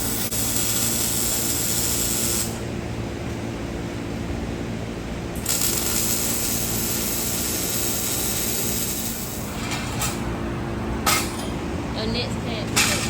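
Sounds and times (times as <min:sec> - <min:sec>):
air tool hissing: 0:00.0 - 0:02.6, 0:05.4 - 0:09.5
low shop hum: 0:00.0 - 0:13.0.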